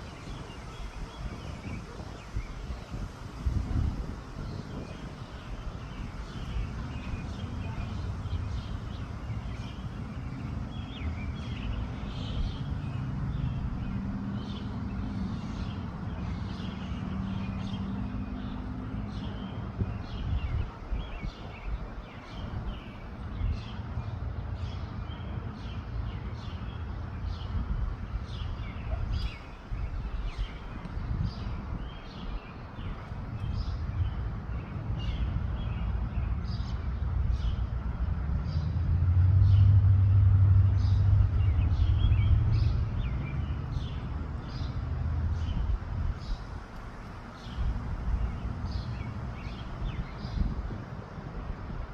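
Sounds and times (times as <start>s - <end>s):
small birds chirping: 0.0s - 37.6s, 40.8s - 51.8s
wind buffeting microphone: 0.0s - 51.9s.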